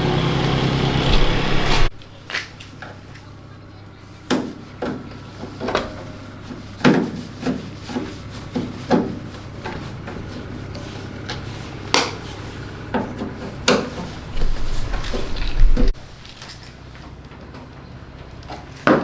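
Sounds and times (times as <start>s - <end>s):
steady low hum: 0.0s - 2.2s
hard parts knocking and clunking: 12.9s - 19.0s.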